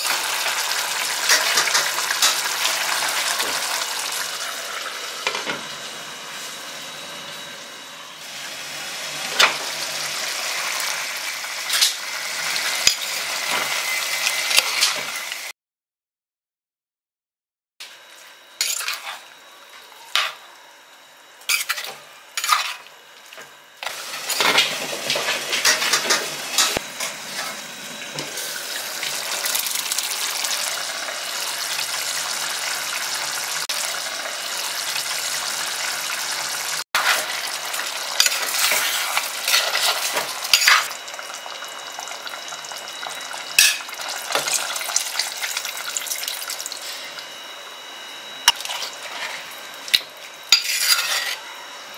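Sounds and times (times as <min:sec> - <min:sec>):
curry sizzling in a pot: 0:23.8 - 0:47.3, 0:48.5 - 0:51.4.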